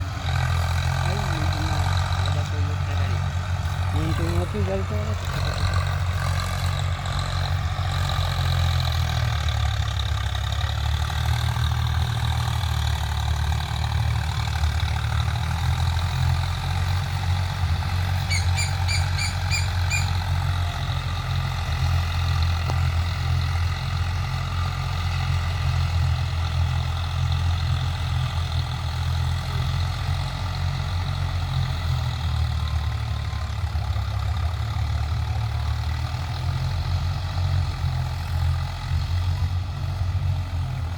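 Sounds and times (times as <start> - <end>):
tractor diesel engine running: 0.0 - 40.9
high chirps: 18.2 - 20.2.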